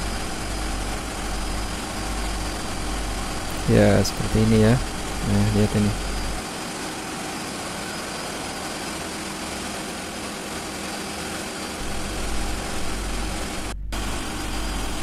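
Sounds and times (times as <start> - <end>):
deep hum: 0.0 - 6.4, 11.8 - 15.0
diesel engines running: 0.0 - 15.0.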